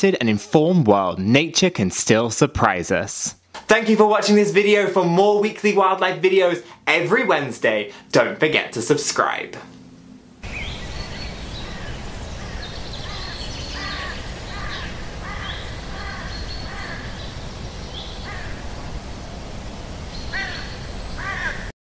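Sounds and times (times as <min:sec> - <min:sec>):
steady background noise: 0:05.6 - 0:21.6
short arched bird calls: 0:10.4 - 0:18.8, 0:20.2 - 0:21.7.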